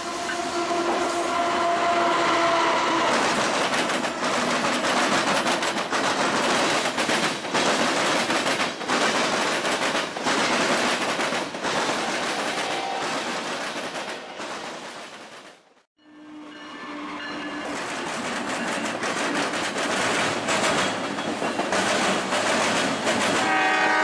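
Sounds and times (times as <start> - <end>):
freight train wheels clattering: 3.1 - 15.6, 17.4 - 23.8.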